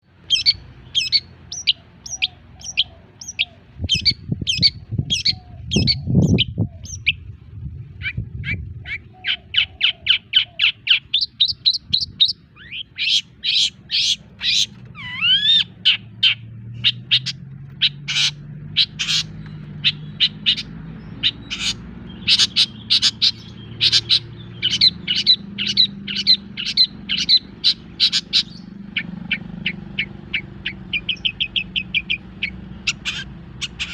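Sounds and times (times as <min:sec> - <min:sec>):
low rumble: 0:03.6 - 0:10.1.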